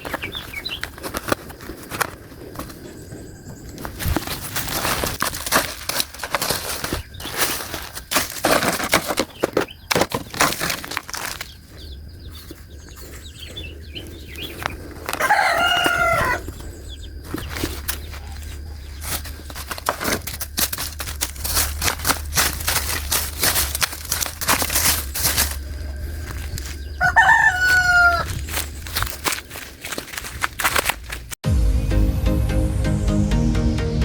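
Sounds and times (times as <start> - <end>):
rubbish rustling and crackling: 0.0 - 31.4
rooster crowing: 15.1 - 16.6, 25.4 - 28.4.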